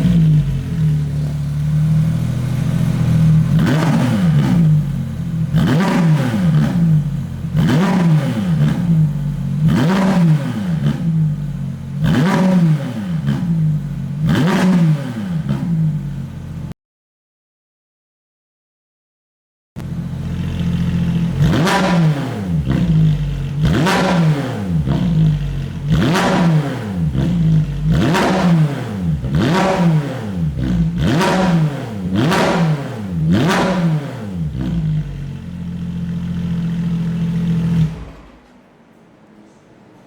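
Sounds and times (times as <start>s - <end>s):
car engine idling: 0.0s - 10.0s, 10.7s - 12.2s, 19.8s - 24.0s, 24.7s - 32.5s, 34.3s - 39.6s
car engine revving: 0.0s - 16.7s, 19.8s - 38.5s.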